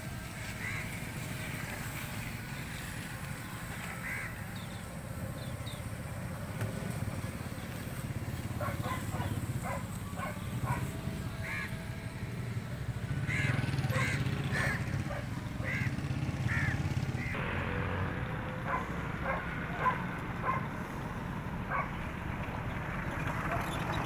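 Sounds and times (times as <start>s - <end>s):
birds cawing: 0.4s - 1.3s, 3.7s - 5.8s, 8.3s - 12.2s, 12.9s - 17.4s
birds chirping: 0.6s - 17.4s, 18.7s - 20.7s, 21.6s - 24.0s.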